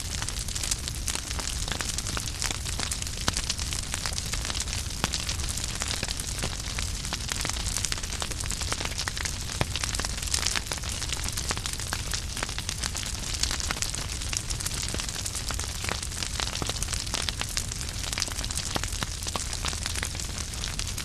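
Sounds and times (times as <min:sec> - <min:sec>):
logs crackling and popping: 0:00.0 - 0:21.0
low rumble of flames: 0:00.0 - 0:21.0.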